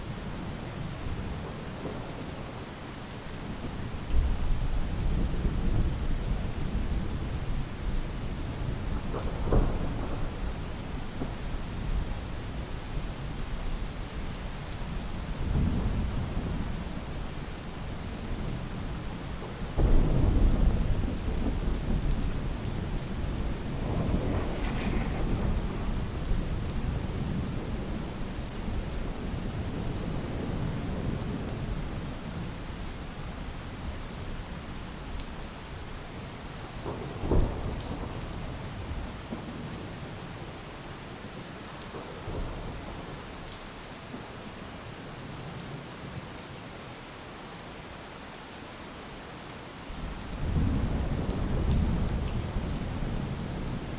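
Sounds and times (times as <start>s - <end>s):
steady rain: 0.0s - 53.9s
thunderclap: 9.0s - 10.4s, 19.8s - 28.2s.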